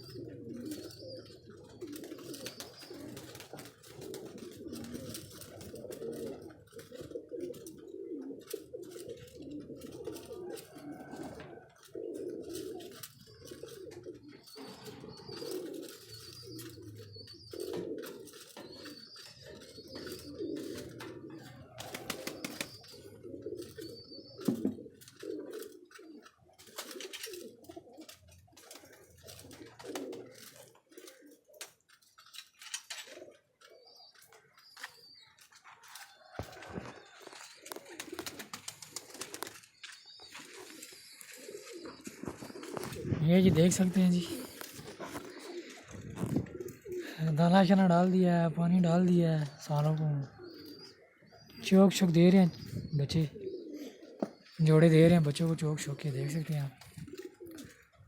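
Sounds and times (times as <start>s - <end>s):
pigeons cooing: 0.0s - 58.0s.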